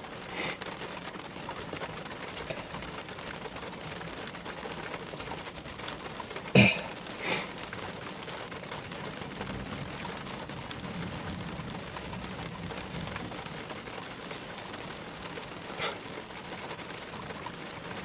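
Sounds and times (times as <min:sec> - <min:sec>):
steady rain: 0:00.0 - 0:18.0
low thunder rumble: 0:09.2 - 0:13.9.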